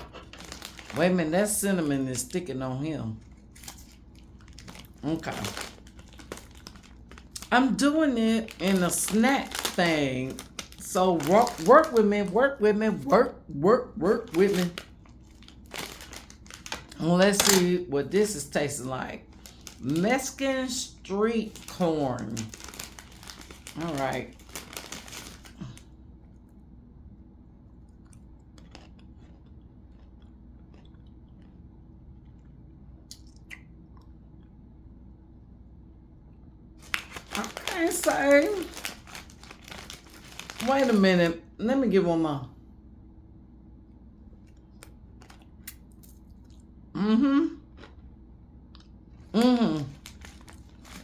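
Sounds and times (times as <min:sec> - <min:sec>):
pretzel sticks crunching: 0:00.0 - 0:01.1, 0:03.2 - 0:12.4, 0:14.1 - 0:17.6, 0:21.4 - 0:25.8, 0:28.0 - 0:31.5, 0:36.8 - 0:41.2, 0:49.4 - 0:51.0
person chewing crunchy snack: 0:27.8 - 0:34.2, 0:47.6 - 0:48.1
person humming: 0:47.0 - 0:47.6.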